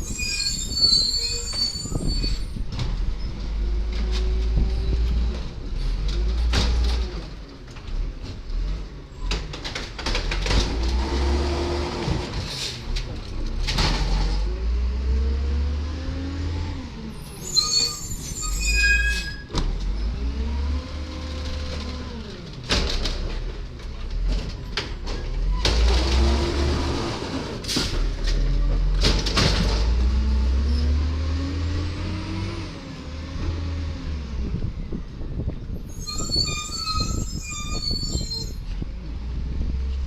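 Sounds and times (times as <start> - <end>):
high-pitched squeal: 17.2 - 19.5.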